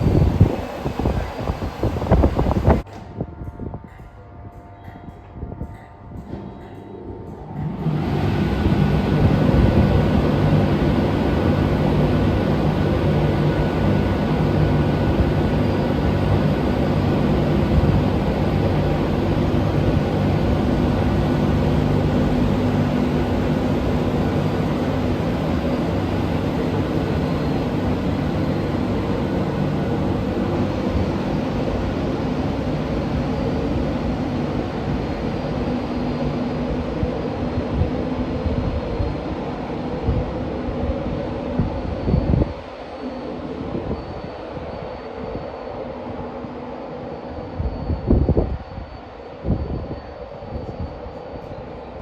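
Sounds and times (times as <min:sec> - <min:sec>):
train engines droning: 0:00.0 - 0:52.0.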